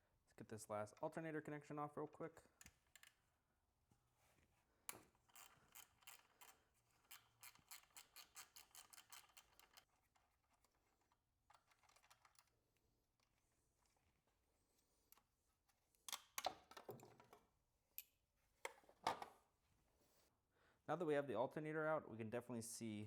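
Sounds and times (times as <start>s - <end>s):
hand ratchet clicking: 5.3s - 9.8s.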